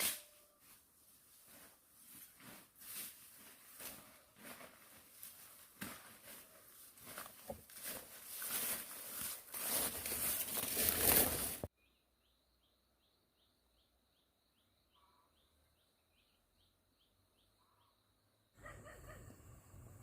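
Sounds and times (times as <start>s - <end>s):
rustling and crackling noise: 1.3s - 11.7s.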